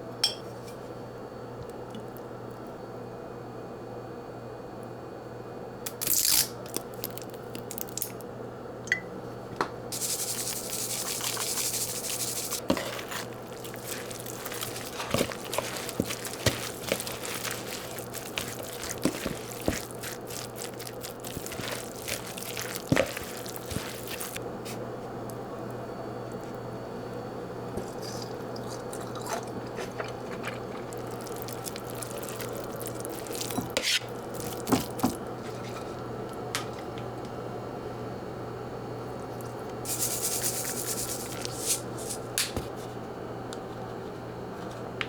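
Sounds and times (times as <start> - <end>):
low steady hum: 6.6 - 43.6
running water: 9.9 - 24.4
water spraying: 9.9 - 24.4, 39.9 - 42.2.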